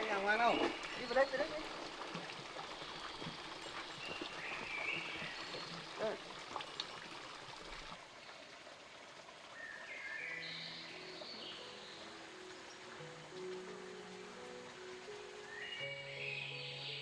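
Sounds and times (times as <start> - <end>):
running water: 0.0 - 17.0
soft music with sustained notes: 9.6 - 17.0.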